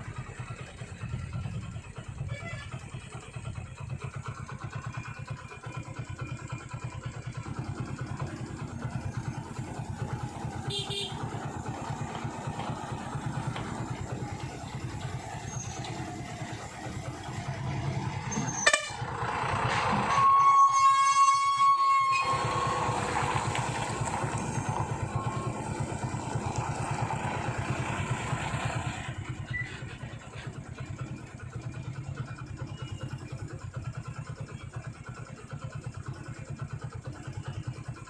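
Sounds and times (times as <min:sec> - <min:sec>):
truck diesel engine pulsing: 0:00.0 - 0:38.0
vehicle horn: 0:10.5 - 0:11.5, 0:18.4 - 0:19.1, 0:19.9 - 0:24.3.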